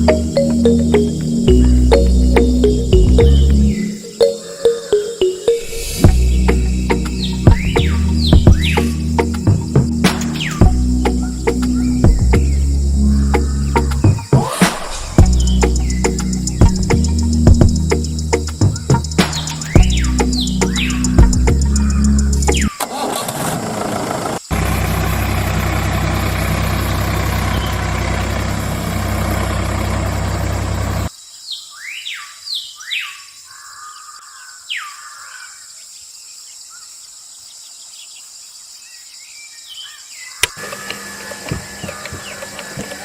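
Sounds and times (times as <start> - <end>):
birds chirping: 0.0 - 22.9, 24.3 - 35.9, 36.6 - 43.0
sharp click: 10.1 - 10.7.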